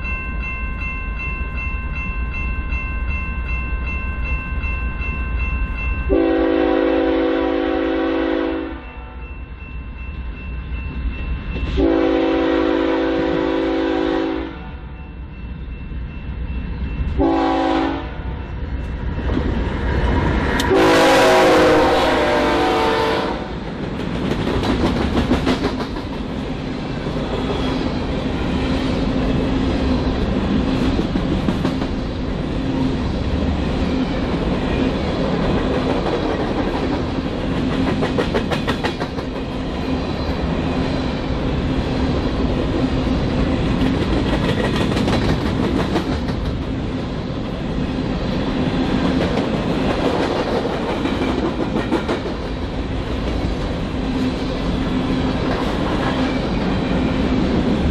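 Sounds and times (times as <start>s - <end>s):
freight train rumbling past: 0.0s - 57.9s.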